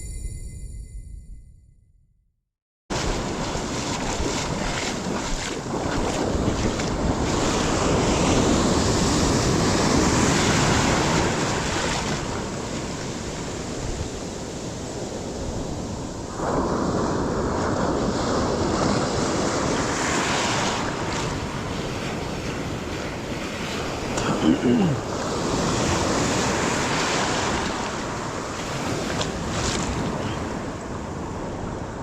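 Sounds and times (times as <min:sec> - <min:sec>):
ocean surf washing onto beach: 0:02.9 - 0:32.0
wind buffeting microphone: 0:03.0 - 0:24.1.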